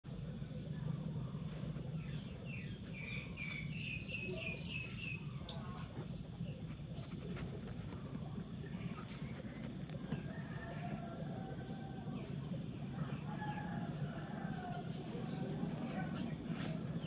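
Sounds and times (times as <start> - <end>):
steady low hum: 0.0 - 17.0
birds chirping: 0.1 - 17.0.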